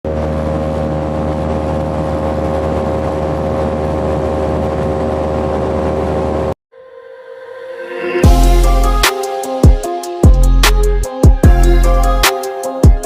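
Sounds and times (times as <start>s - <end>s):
electric fan motor whining: 0.1s - 6.6s.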